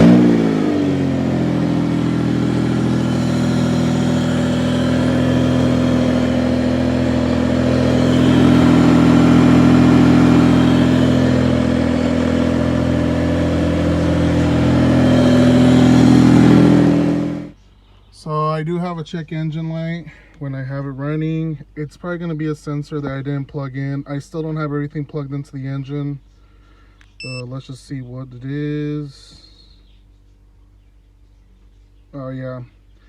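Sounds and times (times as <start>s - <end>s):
car engine idling: 0.0s - 17.6s.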